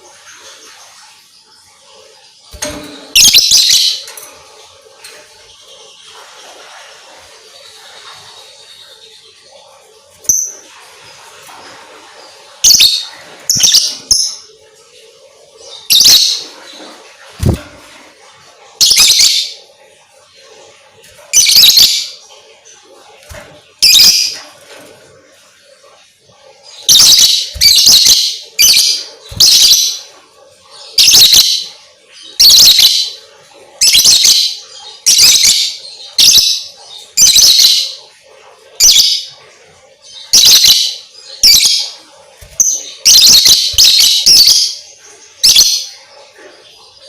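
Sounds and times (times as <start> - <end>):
lovebird shrill chirps: 26.9 - 30.0, 42.5 - 44.7.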